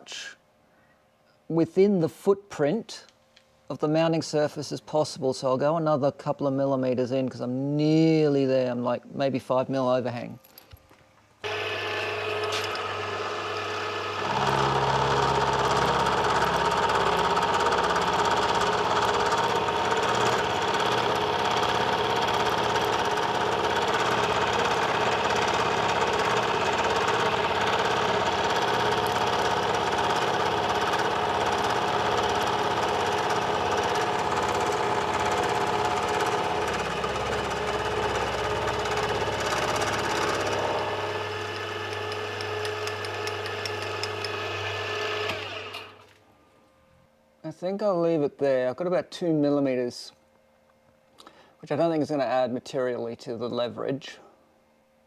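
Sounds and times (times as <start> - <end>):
machine tool cutting metal: 11.4 - 46.0.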